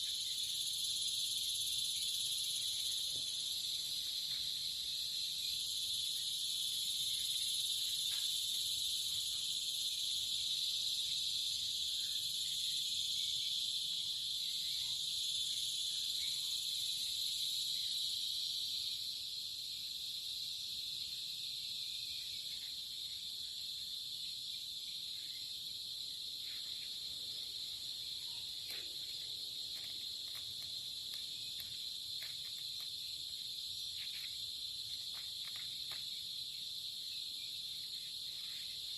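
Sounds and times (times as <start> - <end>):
insects chirping chorus: 0.0 - 38.9.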